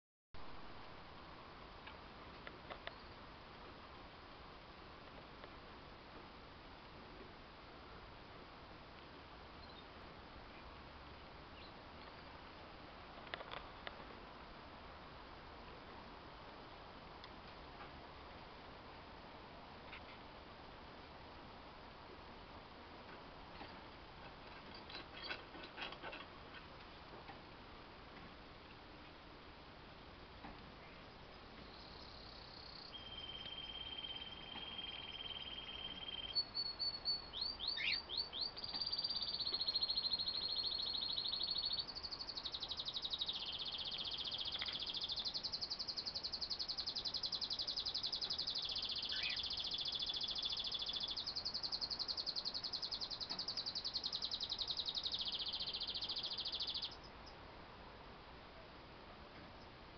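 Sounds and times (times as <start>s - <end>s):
cockatiel chick calling: 33.0s - 41.9s, 49.0s - 49.5s.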